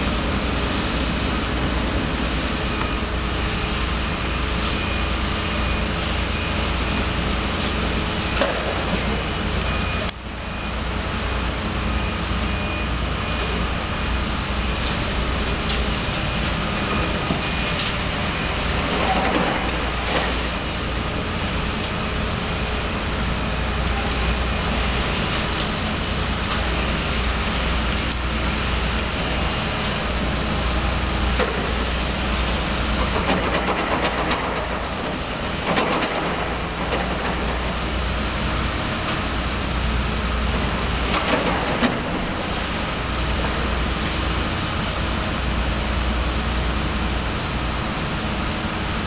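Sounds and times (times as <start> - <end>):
demolition machinery engine hum: 0.0 - 49.0.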